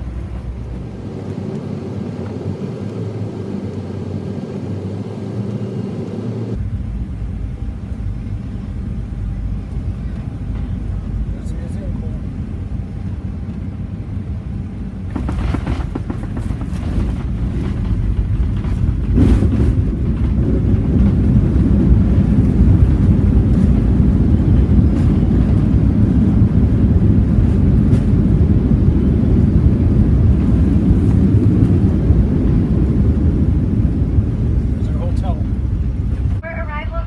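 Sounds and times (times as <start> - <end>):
airliner cabin rumble: 0.0 - 37.0
knocks: 15.1 - 19.8.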